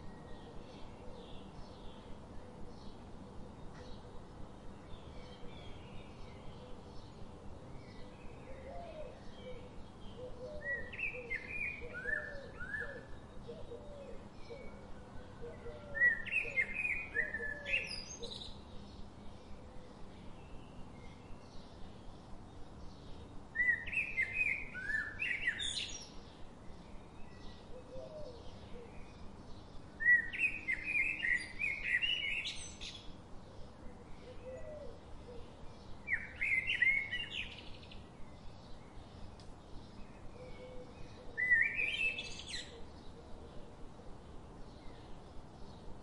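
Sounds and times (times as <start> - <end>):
songbird singing warbled phrases: 16.0 - 19.6, 20.4 - 46.0
faint quick ticks: 39.4 - 39.6.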